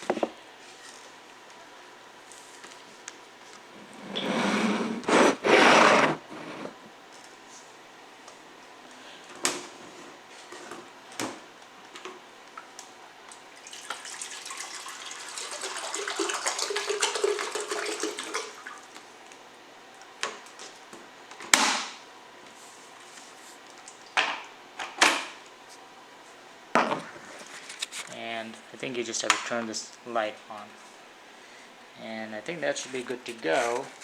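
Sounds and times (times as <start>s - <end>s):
water running into kettle jug: 13.6s - 18.8s.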